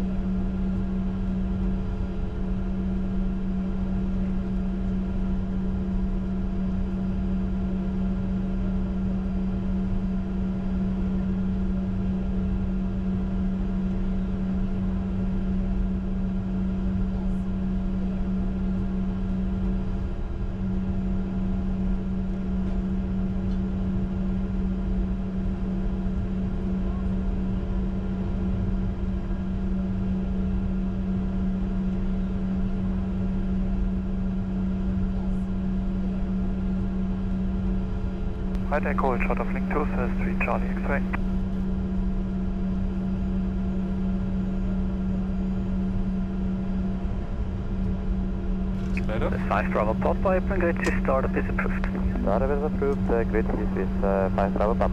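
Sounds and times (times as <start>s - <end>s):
jet engines idling hum: 38.6s - 41.6s, 48.8s - 54.9s.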